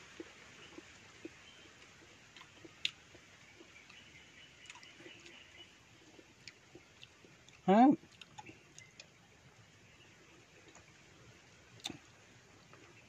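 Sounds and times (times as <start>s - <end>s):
faint chewing mouth clicks: 0.1s - 9.1s, 10.6s - 11.0s, 11.7s - 12.1s.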